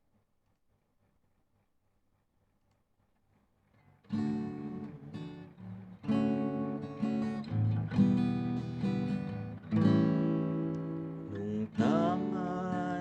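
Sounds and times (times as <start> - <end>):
acoustic guitar strumming chords: 4.1 - 13.0.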